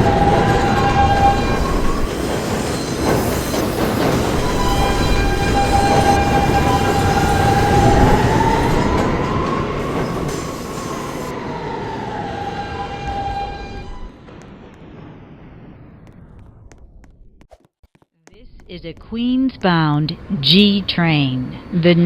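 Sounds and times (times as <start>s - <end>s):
high ringing squeal: 0.0s - 14.2s
wheels rumbling on rail: 0.0s - 16.7s.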